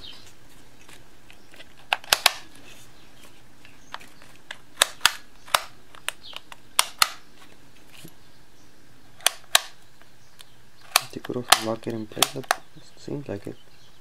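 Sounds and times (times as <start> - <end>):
jigsaw parts clicking and snapping: 0.8 - 2.5, 3.9 - 7.2, 9.2 - 9.8, 10.4 - 12.7.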